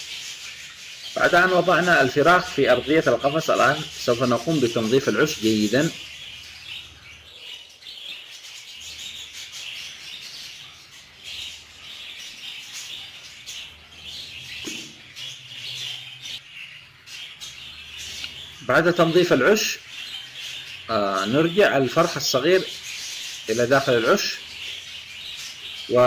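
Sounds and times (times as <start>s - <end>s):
budgerigars chirping: 0.0s - 26.0s.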